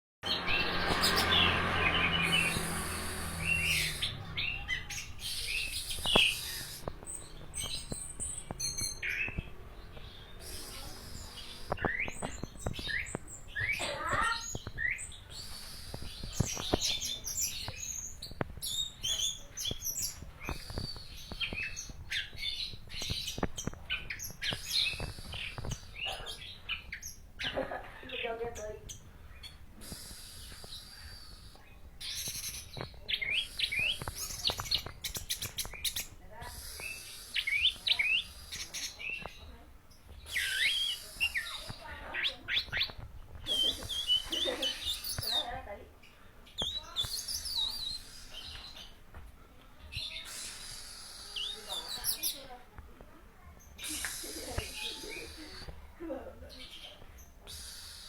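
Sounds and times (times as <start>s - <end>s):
thrush singing whistles and chirps: 0.2s - 27.2s, 28.9s - 45.5s, 46.5s - 49.0s, 49.9s - 52.4s, 53.7s - 55.8s, 56.7s - 58.0s
sharp bird clicks: 2.1s - 27.2s, 29.4s - 39.4s, 53.6s - 55.8s.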